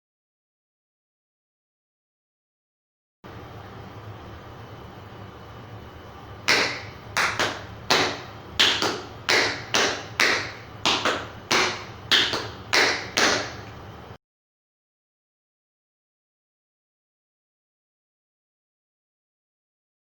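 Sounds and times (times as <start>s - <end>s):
tap shoes striking floor: 6.5s - 13.7s.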